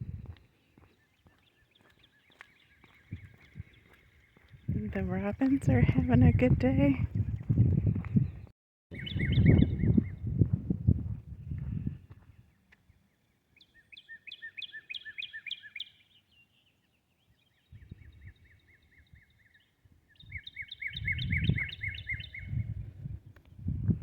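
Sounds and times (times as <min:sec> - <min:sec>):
songbirds chirping: 0:00.0 - 0:06.6, 0:07.3 - 0:10.3, 0:12.0 - 0:22.9
soft footsteps: 0:00.2 - 0:05.6.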